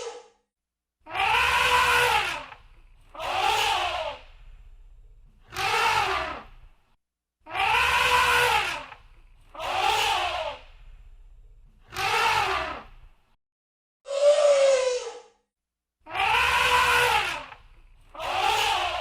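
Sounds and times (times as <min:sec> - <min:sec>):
elephant trumpeting: 0:01.1 - 0:04.2, 0:07.5 - 0:09.0, 0:16.1 - 0:17.6.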